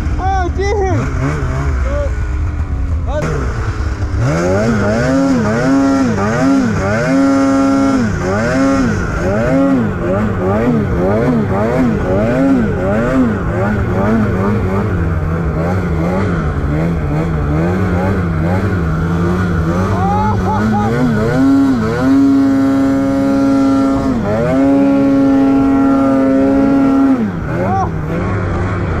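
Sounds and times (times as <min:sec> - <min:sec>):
snowmobile engine revving: 0:00.0 - 0:29.0.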